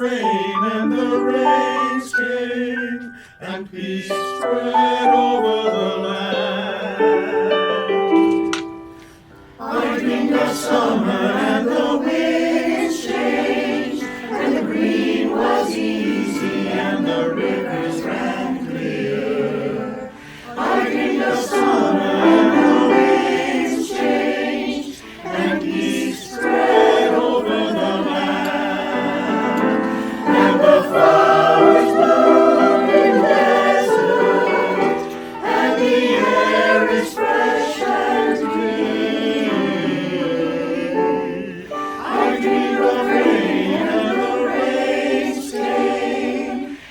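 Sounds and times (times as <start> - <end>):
choir singing: 0.0 - 8.0, 9.5 - 46.9
singers breathing: 3.1 - 3.4, 8.9 - 9.6, 20.1 - 20.6, 25.0 - 25.2, 29.8 - 30.4, 46.7 - 46.9.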